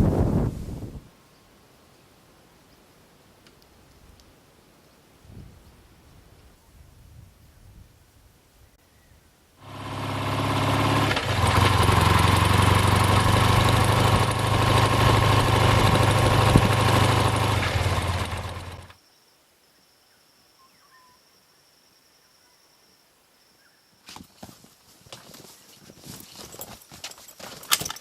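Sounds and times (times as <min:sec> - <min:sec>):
engine idling: 0:09.6 - 0:18.9.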